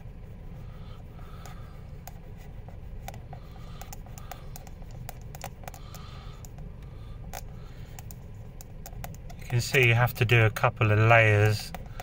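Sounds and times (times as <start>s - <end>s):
steady low hum: 0.0s - 12.0s
marker tip clicking and tapping: 3.0s - 6.6s, 7.3s - 9.9s.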